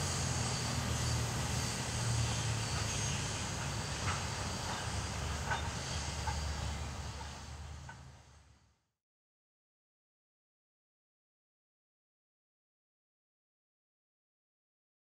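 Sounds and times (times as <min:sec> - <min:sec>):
freight train rumbling: 0:00.0 - 0:08.6.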